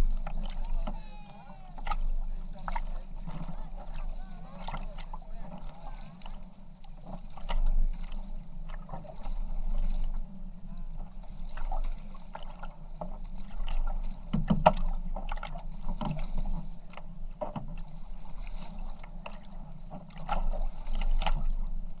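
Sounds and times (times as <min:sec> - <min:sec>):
low rumble: 0:00.0 - 0:12.3
paddles splashing in water: 0:00.0 - 0:22.0.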